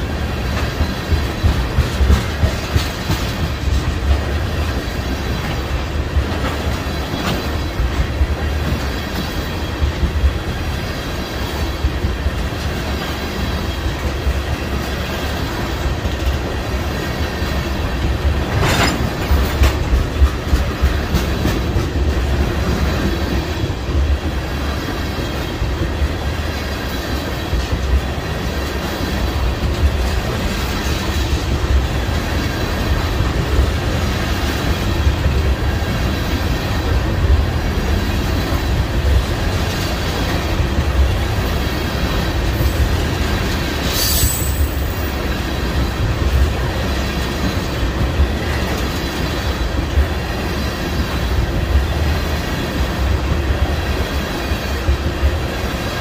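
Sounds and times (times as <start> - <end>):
train wheels rumbling on rail: 0.0 - 56.0
wheels clacking over rail joints: 0.0 - 56.0.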